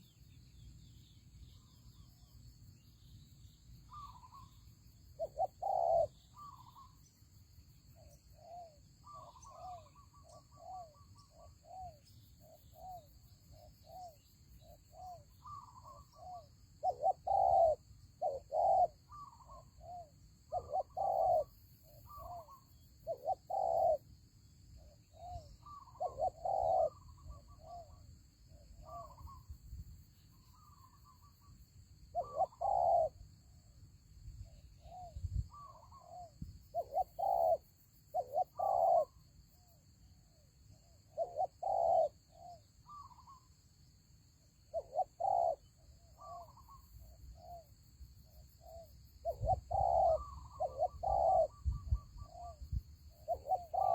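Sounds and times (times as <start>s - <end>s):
doves cooing: 5.2s - 6.9s, 16.8s - 19.6s, 20.5s - 21.5s, 22.1s - 24.0s, 25.3s - 27.9s, 32.2s - 33.2s, 35.5s - 39.2s, 41.2s - 42.2s, 44.7s - 45.6s, 49.2s - 51.6s, 53.3s - 53.9s.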